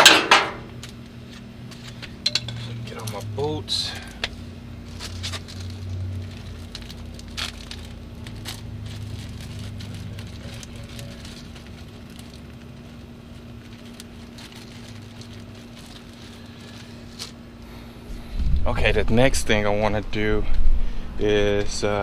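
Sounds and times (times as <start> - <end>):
steady low hum: 0.0 - 22.0
tools clicking and tapping: 2.1 - 2.6.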